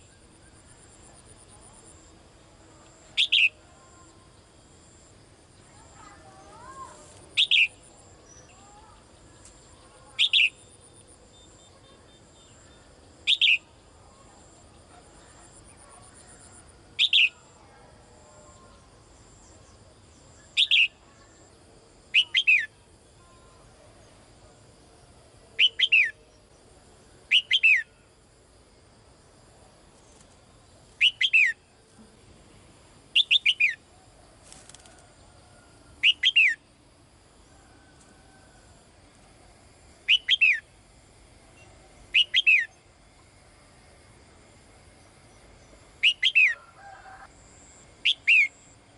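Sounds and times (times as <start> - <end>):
songbird calling: 3.0 - 4.2, 5.6 - 13.9, 15.2 - 17.6, 18.5 - 21.5, 22.1 - 23.6, 25.6 - 26.4, 27.3 - 28.0, 31.0 - 31.8, 33.1 - 33.8, 35.6 - 36.7, 40.0 - 40.7, 41.5 - 42.9, 45.6 - 48.8.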